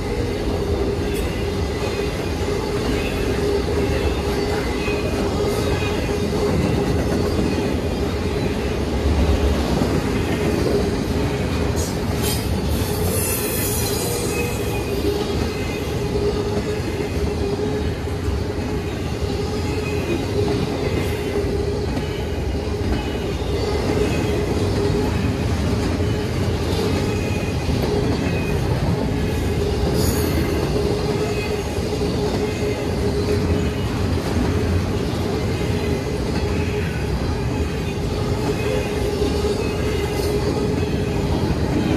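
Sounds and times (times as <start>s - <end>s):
train wheels rumbling on rail: 0.0s - 41.9s
high-pitched squeal: 11.8s - 17.9s.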